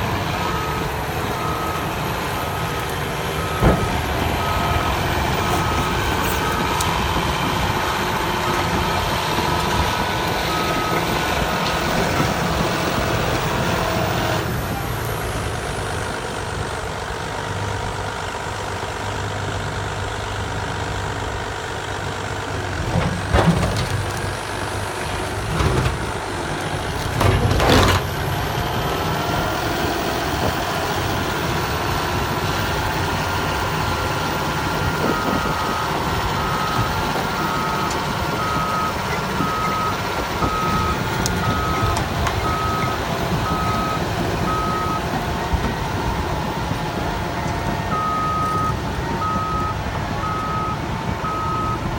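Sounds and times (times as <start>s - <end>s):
bulldozer diesel engine under load: 0.0s - 51.9s
backup alarm beeping: 36.4s - 45.1s.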